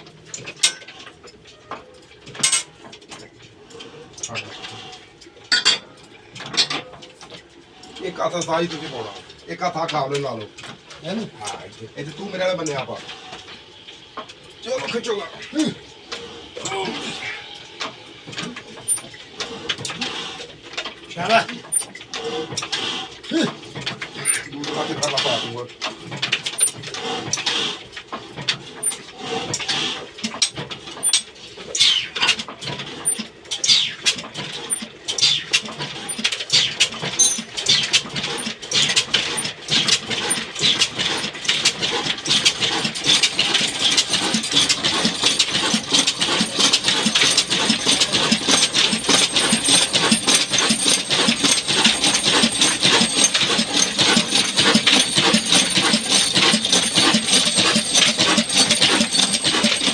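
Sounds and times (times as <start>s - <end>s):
diesel engine starting up: 32.8s - 59.9s.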